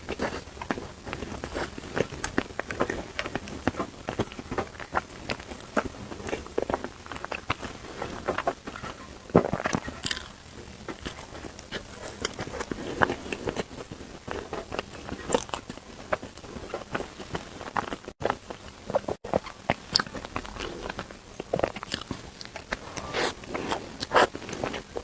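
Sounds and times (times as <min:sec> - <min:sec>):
person chewing crunchy food: 0:00.0 - 0:25.0.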